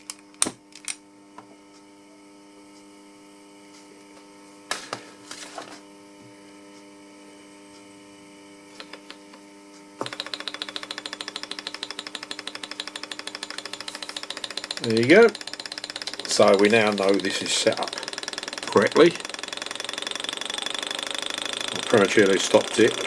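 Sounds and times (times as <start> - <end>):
knocks and clicks: 8.8 - 9.4, 10.0 - 23.0
hot air engine ticking: 10.0 - 23.0.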